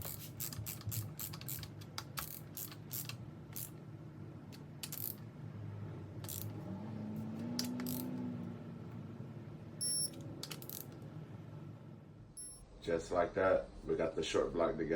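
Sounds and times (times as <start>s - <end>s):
torque wrench ratchet clicking: 0.0s - 3.8s, 4.8s - 5.2s, 6.2s - 6.5s, 7.6s - 8.1s, 9.8s - 10.9s.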